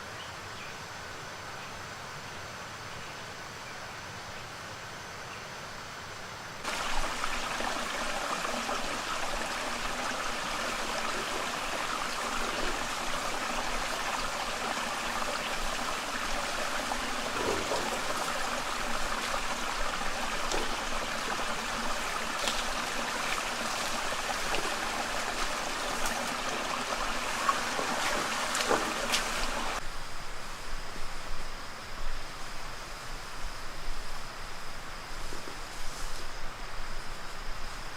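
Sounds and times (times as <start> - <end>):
water running: 6.6 - 29.8.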